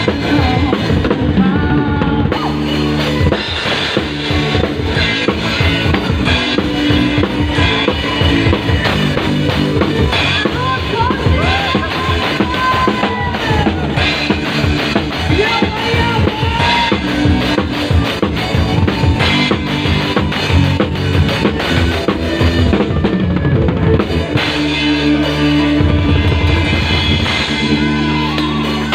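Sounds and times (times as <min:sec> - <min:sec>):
band playing: 0:00.0 - 0:28.9
drum kit beat: 0:00.0 - 0:28.9.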